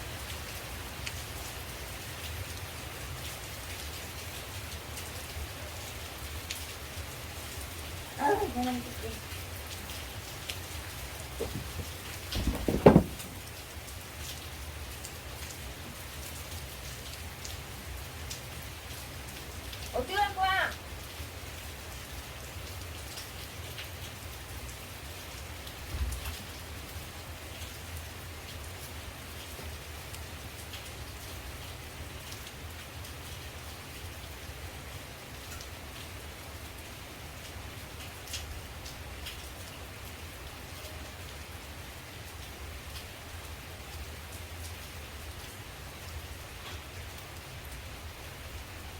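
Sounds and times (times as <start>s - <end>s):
raindrops striking: 0.0s - 34.2s
rain falling on leaves: 0.0s - 48.9s
cluster of knocks: 11.4s - 13.5s.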